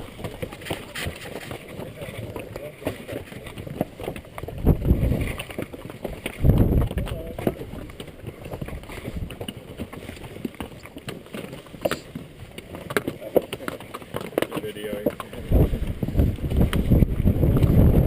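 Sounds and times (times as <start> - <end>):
hooves clicking on rocky trail: 0.0 - 18.0
wind buffeting the microphone: 4.4 - 5.5, 6.2 - 9.4, 15.3 - 18.0.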